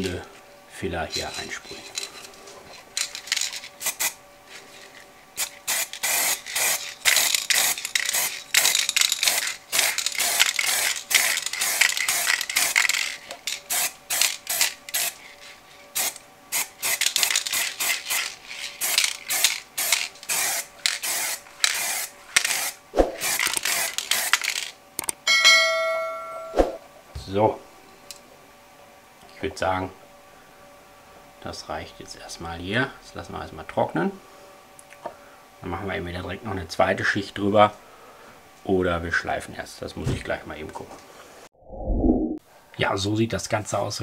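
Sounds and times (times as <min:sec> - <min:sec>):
aerosol spray can hissing: 0:05.4 - 0:12.8, 0:13.7 - 0:15.2, 0:16.0 - 0:24.3.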